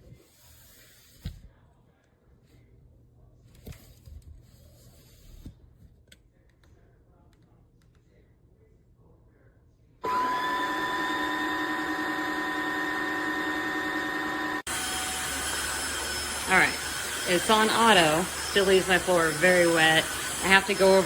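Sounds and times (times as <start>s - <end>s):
floor cleaner motor whine: 10.0s - 21.0s.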